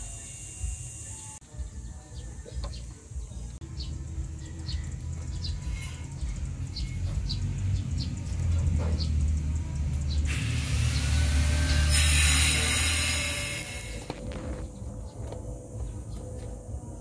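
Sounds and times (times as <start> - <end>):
steady low rumble: 13.4 - 17.0.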